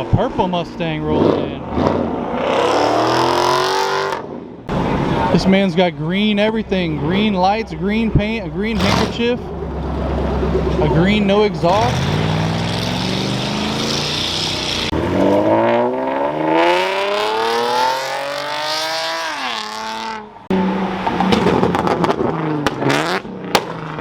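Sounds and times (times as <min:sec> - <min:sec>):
car engine revving: 0:00.8 - 0:05.4, 0:06.6 - 0:24.0
sharp exhaust cracks: 0:08.2 - 0:15.0.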